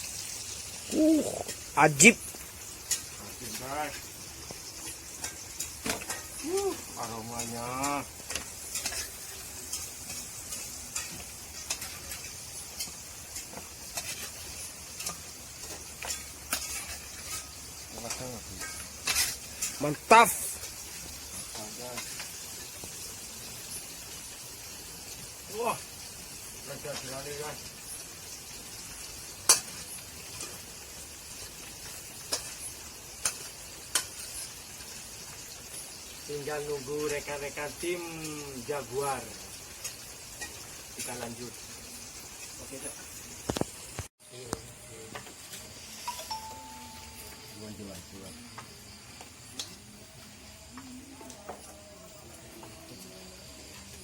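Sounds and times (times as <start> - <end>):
meat sizzling in a pan: 0.0 - 54.0
utensil striking a pan: 7.0 - 19.8, 29.4 - 30.6.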